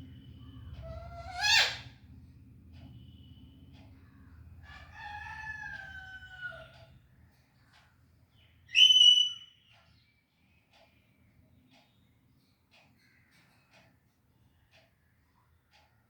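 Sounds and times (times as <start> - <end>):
parrot calling: 0.8 - 1.9, 8.7 - 9.5.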